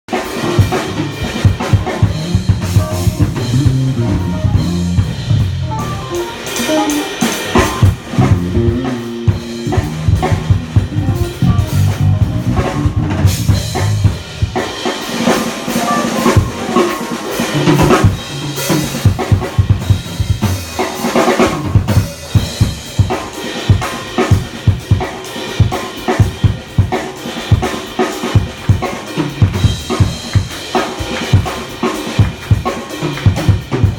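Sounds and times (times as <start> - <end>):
live band playing: 0.1 - 33.9
bass drum and snare hits: 0.4 - 14.7
bass line: 0.6 - 14.6.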